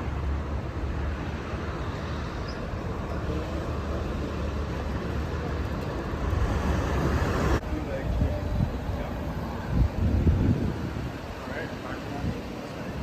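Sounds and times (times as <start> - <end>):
vehicle rumble and hiss: 0.0 - 13.0.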